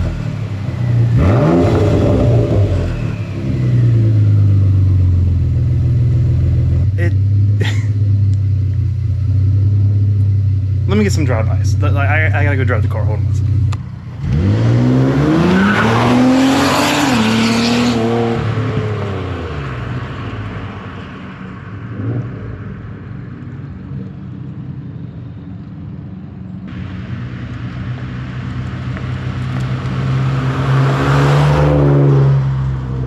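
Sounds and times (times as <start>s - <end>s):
car engine accelerating hard: 0.0s - 8.4s, 13.2s - 20.6s, 26.7s - 33.0s.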